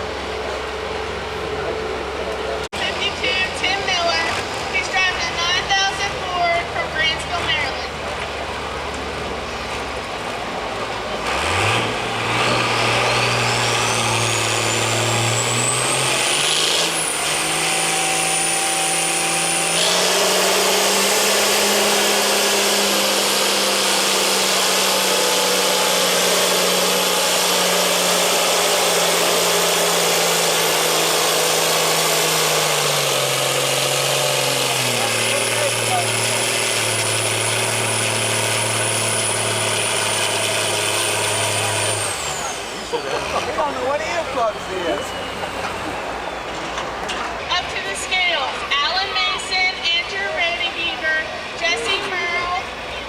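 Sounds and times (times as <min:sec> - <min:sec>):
diesel tractor engine revving: 0:00.0 - 0:53.0.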